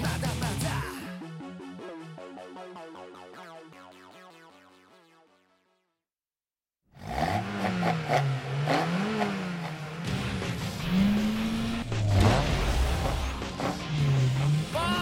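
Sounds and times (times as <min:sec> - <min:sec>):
car engine revving: 0:07.0 - 0:15.0.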